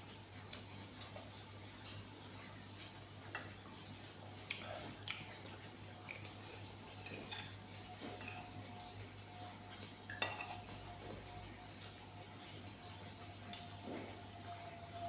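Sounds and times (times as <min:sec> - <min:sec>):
utensils clinking against a bowl: 0:06.0 - 0:11.0.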